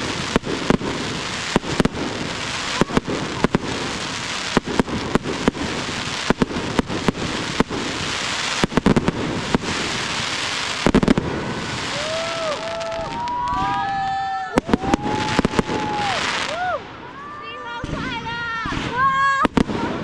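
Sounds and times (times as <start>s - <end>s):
fireworks hiss: 0.0s - 13.9s
fireworks bursting with sharp bangs: 0.0s - 20.0s.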